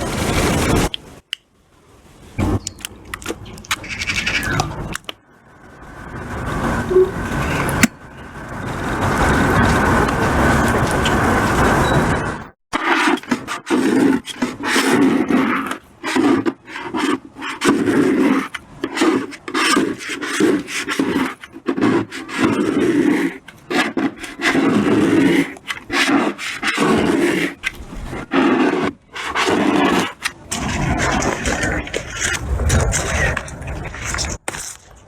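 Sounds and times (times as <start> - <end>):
rough scraping strokes: 12.8 - 35.0.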